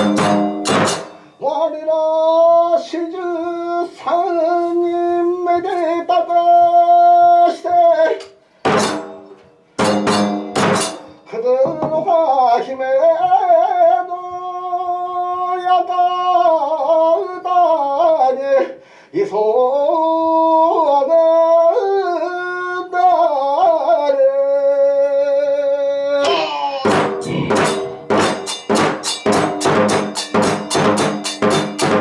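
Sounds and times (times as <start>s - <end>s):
sharp drum strikes: 0.0s - 1.4s, 8.7s - 12.2s, 26.2s - 32.0s
person singing a chant: 19.3s - 28.3s.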